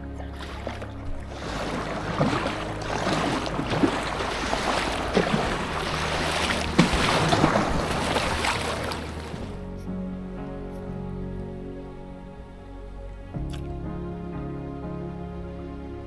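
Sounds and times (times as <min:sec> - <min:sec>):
river water rushing and splashing: 0:00.0 - 0:09.8.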